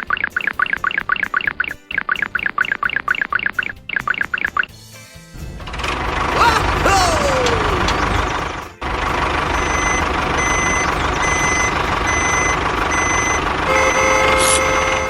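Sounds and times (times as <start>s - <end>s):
small vehicle running: 5.4s - 15.0s
held multi-pitch tone: 9.5s - 15.0s
reversing alarm beeping: 9.5s - 15.0s.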